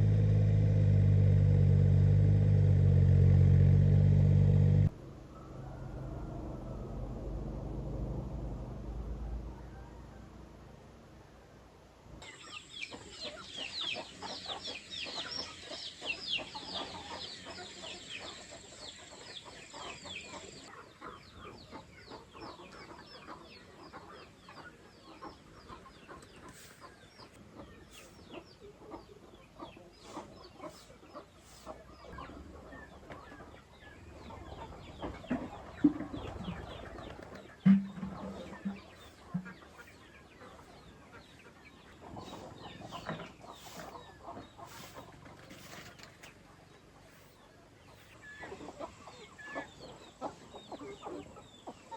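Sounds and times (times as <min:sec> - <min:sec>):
chicks cheeping: 0:12.2 - 0:45.3, 0:46.2 - 0:51.9
chickens clucking: 0:12.2 - 0:51.9.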